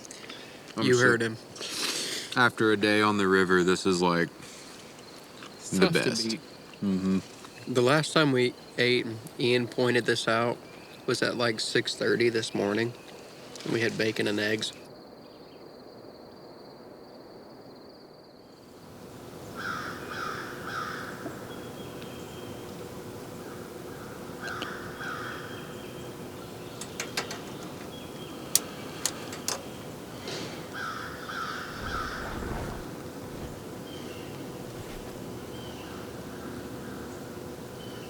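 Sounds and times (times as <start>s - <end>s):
crow cawing: 19.6s - 21.2s, 23.4s - 25.9s, 30.7s - 32.4s
sharp clicks: 26.8s - 29.7s.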